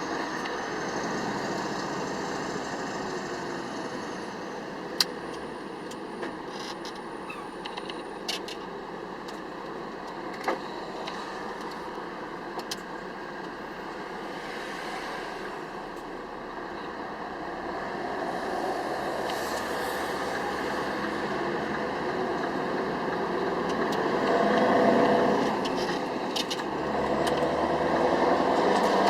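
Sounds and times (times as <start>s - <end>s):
lorry engine and road noise: 0.0s - 29.0s.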